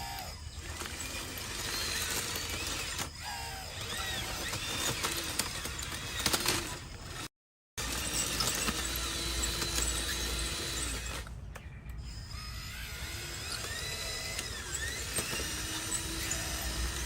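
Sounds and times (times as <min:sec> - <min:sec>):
small electric motors whining: 0:00.0 - 0:17.0.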